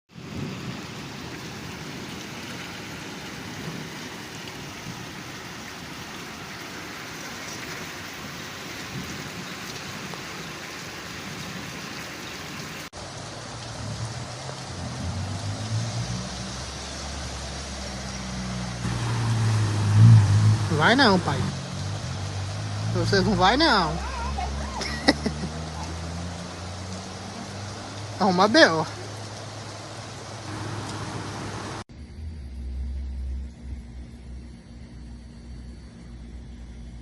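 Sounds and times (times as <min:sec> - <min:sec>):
heavy rain hissing: 0:00.1 - 0:37.0
low rumble: 0:30.5 - 0:37.0.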